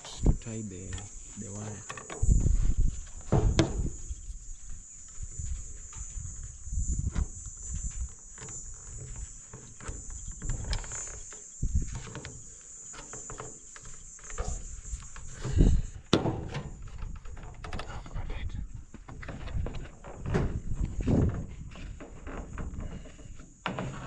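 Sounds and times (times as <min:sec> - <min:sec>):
high-pitched insect chirring: 0:00.0 - 0:19.9
handling clicks and knocks: 0:00.8 - 0:02.3.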